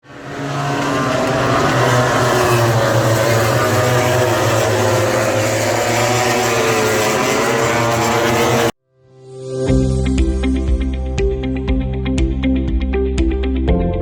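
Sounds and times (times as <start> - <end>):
vehicle engine droning: 0.0 - 8.8.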